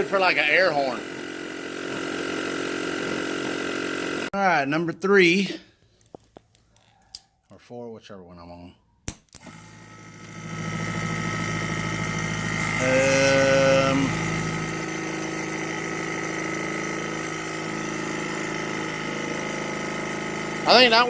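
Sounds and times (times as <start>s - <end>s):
air compressor motor hum: 0.0s - 4.3s, 9.4s - 21.0s.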